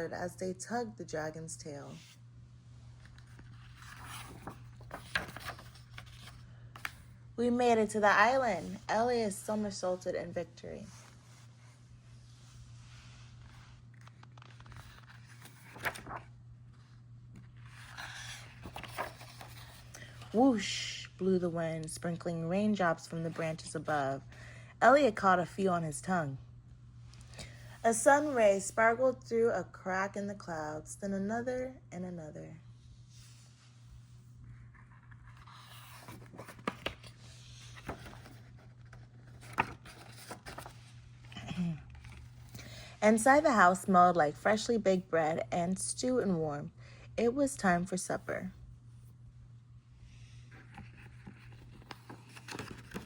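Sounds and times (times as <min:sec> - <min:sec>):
low steady hum: 0:00.0 - 0:53.0
paper rustling: 0:03.0 - 0:07.1, 0:13.3 - 0:16.3, 0:17.3 - 0:20.4, 0:34.5 - 0:42.6, 0:50.3 - 0:53.0.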